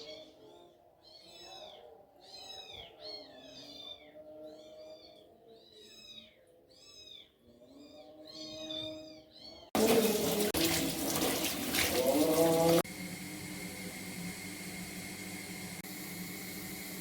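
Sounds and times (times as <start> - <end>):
water running from a tap: 9.8 - 17.0.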